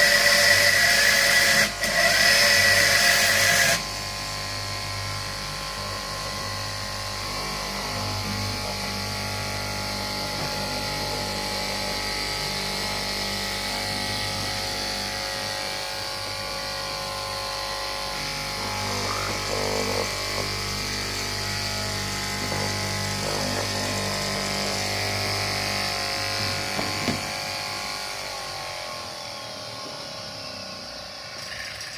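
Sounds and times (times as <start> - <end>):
cloth-cutting machine humming: 0.0 - 31.9
scratchy sounds: 16.1 - 27.4.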